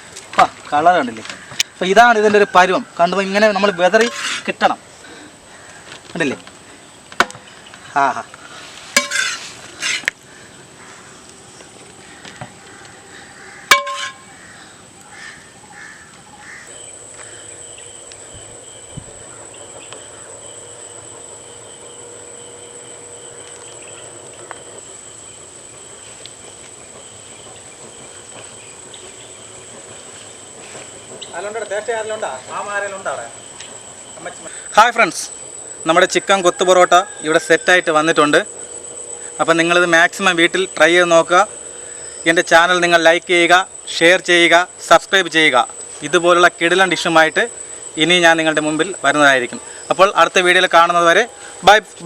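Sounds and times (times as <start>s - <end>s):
metal utensil scraping a pan: 4.0s - 4.6s, 8.9s - 10.1s, 13.7s - 14.3s
metal clink: 9.0s - 9.4s, 13.7s - 14.2s
faint steady hiss: 21.0s - 52.0s.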